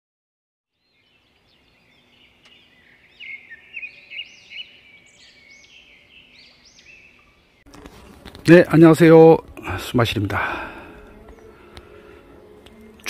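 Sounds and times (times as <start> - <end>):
birds chirping: 0.7 - 7.7, 9.6 - 12.9.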